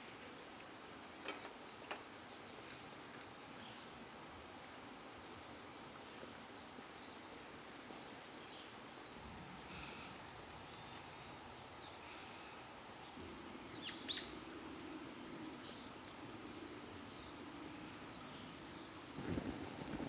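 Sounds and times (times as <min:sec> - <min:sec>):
faint outdoor background noise: 0:00.0 - 0:20.0
small birds chirping: 0:04.6 - 0:20.0.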